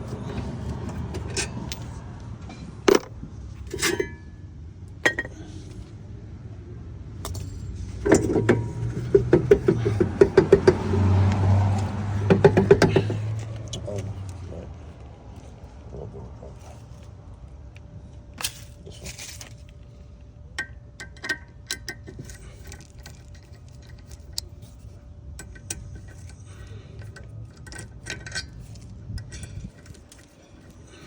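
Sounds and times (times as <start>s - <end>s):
low background rumble: 0.0s - 31.0s
metal tools clinking and rattling: 0.1s - 4.4s, 5.0s - 5.8s, 7.2s - 11.0s, 11.7s - 14.0s, 18.4s - 19.7s, 20.6s - 31.0s.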